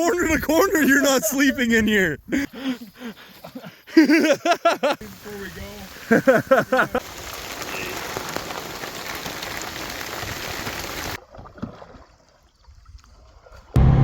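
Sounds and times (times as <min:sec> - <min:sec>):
steady rain: 0:04.0 - 0:11.2
loud low hum: 0:13.8 - 0:14.0.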